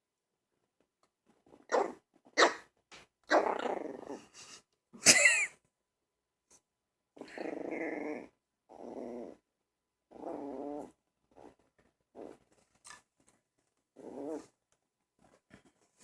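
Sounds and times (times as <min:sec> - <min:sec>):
puppy barking: 0:01.7 - 0:02.7
puppy growling: 0:03.3 - 0:04.5, 0:07.2 - 0:12.6, 0:13.9 - 0:14.6.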